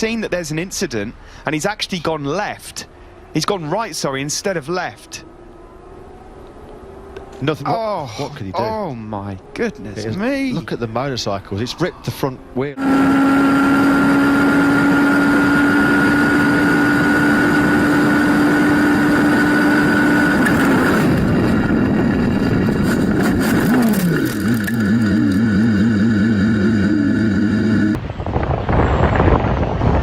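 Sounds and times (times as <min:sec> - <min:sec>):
racing engine revving: 0:12.8 - 0:28.0.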